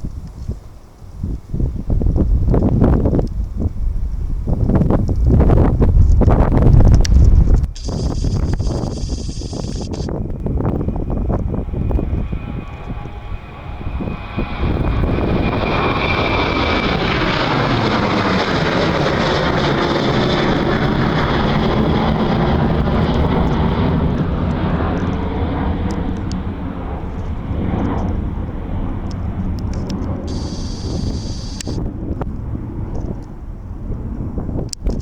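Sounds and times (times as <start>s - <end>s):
jet airliner taking off: 0.7s - 34.9s
thin jet whine: 6.4s - 33.3s.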